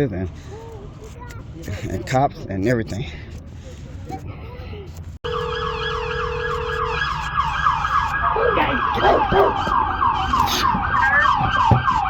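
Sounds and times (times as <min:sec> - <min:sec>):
emergency siren fast yelp: 0:05.3 - 0:12.0.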